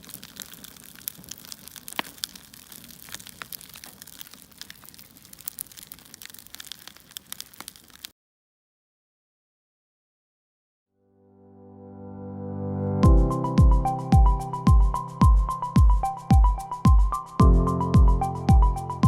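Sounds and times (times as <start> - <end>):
crackling fire: 0.0 - 8.1, 13.1 - 19.0.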